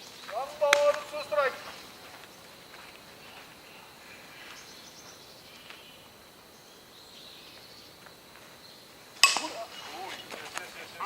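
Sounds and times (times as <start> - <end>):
faint steady hiss: 0.0 - 11.0
high chirps: 9.2 - 10.0.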